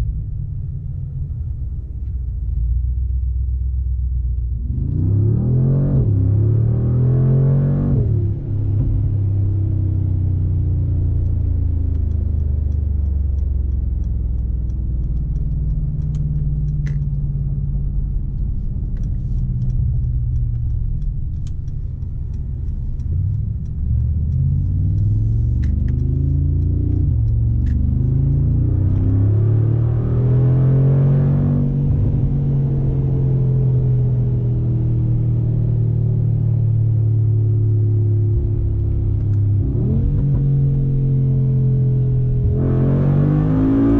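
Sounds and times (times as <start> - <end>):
car engine droning: 0.0 - 43.9
faint ticks: 18.3 - 27.8.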